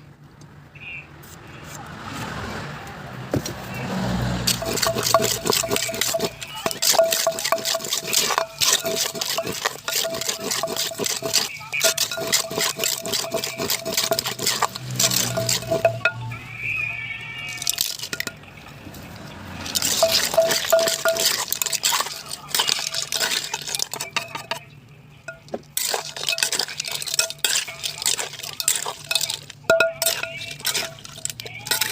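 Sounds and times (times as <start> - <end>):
utensils clicking and knocking: 4.4 - 16.2, 17.6 - 18.4, 19.6 - 24.6, 25.3 - 31.9
wet squelching of salad: 4.4 - 16.2, 17.3 - 24.6, 25.6 - 31.9.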